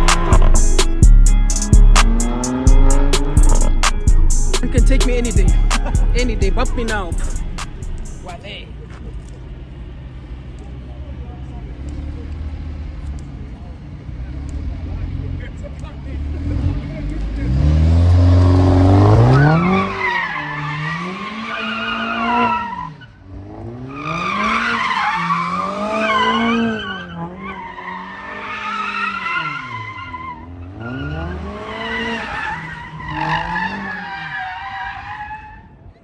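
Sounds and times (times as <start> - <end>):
car engine revving hard: 0.0 - 8.3, 16.2 - 34.5
tyres squealing and skidding: 16.3 - 36.0.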